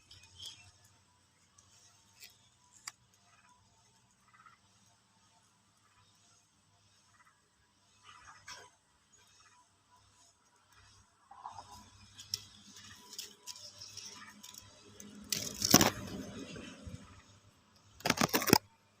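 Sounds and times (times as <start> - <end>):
sharp clicks and crackles: 0.0 - 4.2, 11.7 - 18.8.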